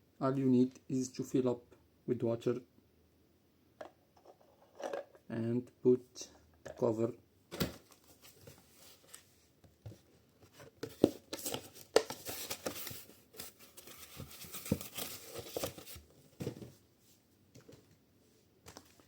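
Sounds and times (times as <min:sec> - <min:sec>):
plastic scraping and rustling: 0:07.6 - 0:16.8.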